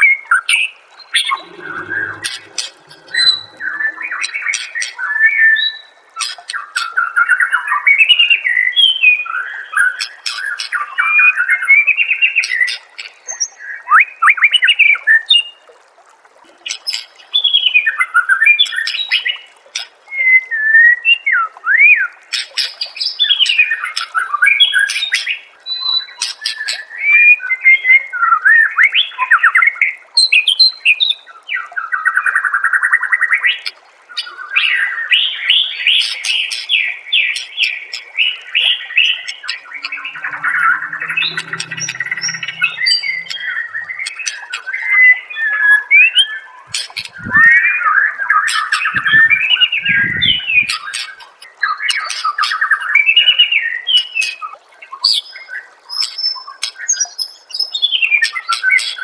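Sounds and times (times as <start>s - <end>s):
bird singing whistled phrases: 36.0s - 54.4s.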